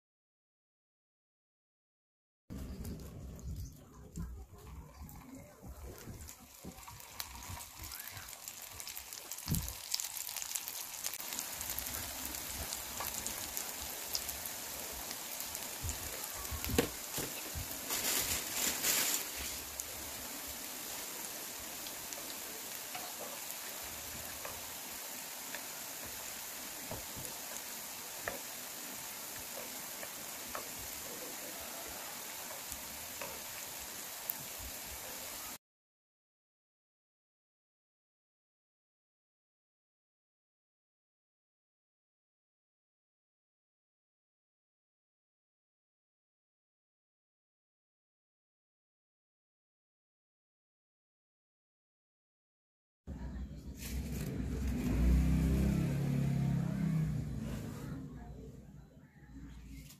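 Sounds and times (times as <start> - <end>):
batter deep-frying in oil: 2.5 - 35.6, 53.7 - 57.9.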